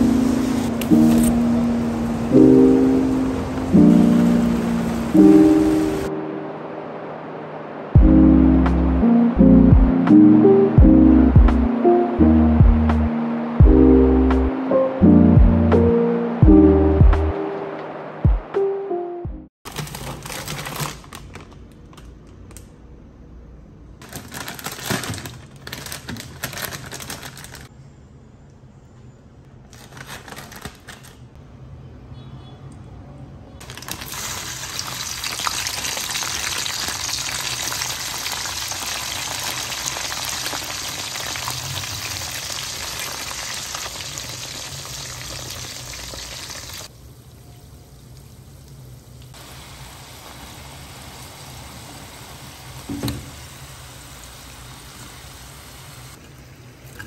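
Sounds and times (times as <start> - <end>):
fries sizzling in hot oil: 0.0 - 6.1, 33.6 - 57.0
plastic bag rustling: 19.7 - 22.0, 24.0 - 27.7, 29.6 - 31.3.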